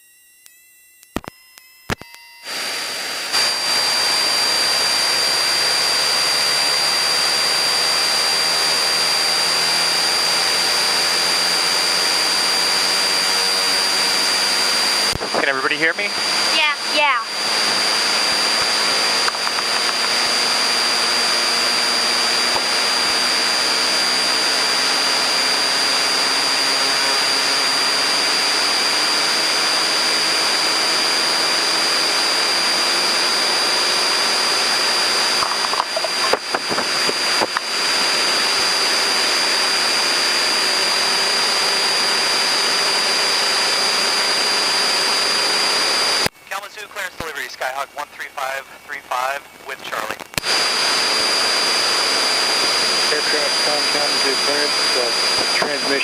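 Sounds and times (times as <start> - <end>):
steady high-pitched whine: 0.0 - 56.0
aircraft engine and propeller: 2.4 - 56.0.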